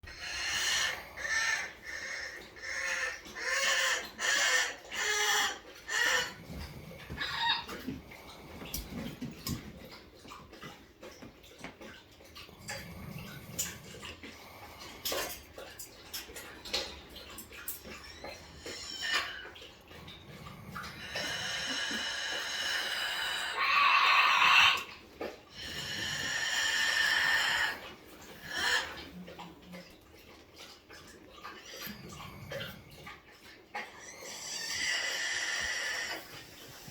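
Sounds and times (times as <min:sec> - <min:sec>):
parrot long calls: 0:00.1 - 0:06.4, 0:21.0 - 0:24.9.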